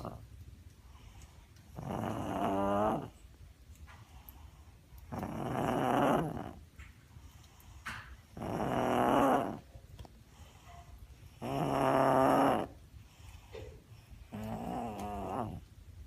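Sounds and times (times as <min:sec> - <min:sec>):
dog grunting: 0:00.0 - 0:00.3, 0:01.7 - 0:03.2, 0:05.1 - 0:06.6, 0:08.3 - 0:09.7, 0:11.4 - 0:12.8, 0:13.6 - 0:15.7.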